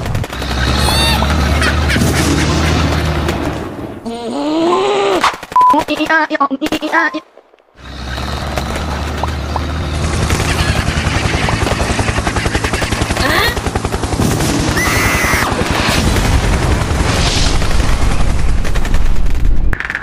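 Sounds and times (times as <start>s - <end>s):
machine-gun fire: 0.0s - 3.7s, 8.1s - 20.0s
low rumble: 13.8s - 19.9s.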